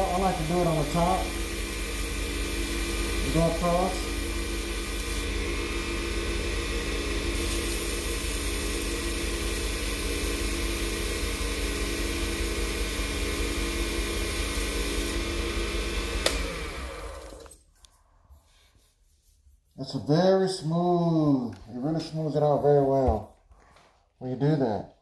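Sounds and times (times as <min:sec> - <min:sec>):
lathe motor running: 0:00.0 - 0:17.6
sanding pad on wood: 0:18.3 - 0:23.4.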